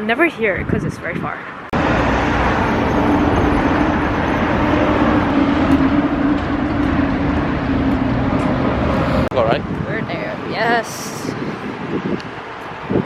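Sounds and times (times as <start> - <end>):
vehicle noise: 0.0 - 13.0.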